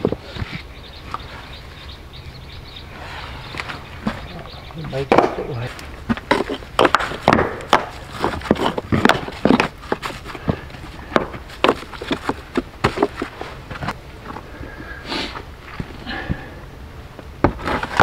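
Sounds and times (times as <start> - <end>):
stones knocking and scraping: 3.5 - 14.5, 17.4 - 18.0.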